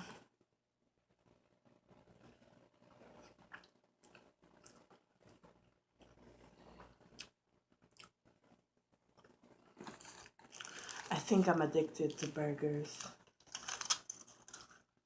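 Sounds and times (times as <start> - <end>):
chewing a burger: 2.1 - 11.1, 13.4 - 14.8.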